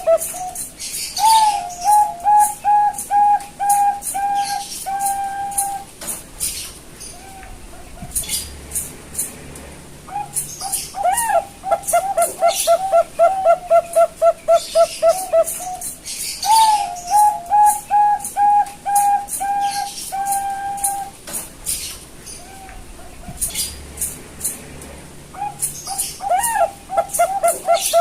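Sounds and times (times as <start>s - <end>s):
dove cooing: 0.0s - 8.5s, 10.1s - 21.2s, 25.3s - 28.0s.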